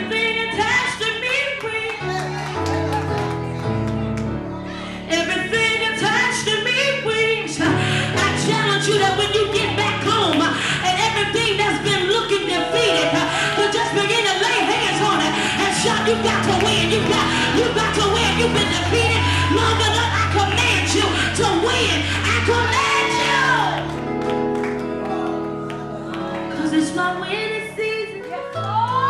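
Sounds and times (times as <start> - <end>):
gospel band playing: 8.2 - 27.4
bass line: 8.3 - 24.5
voices singing: 12.4 - 23.8.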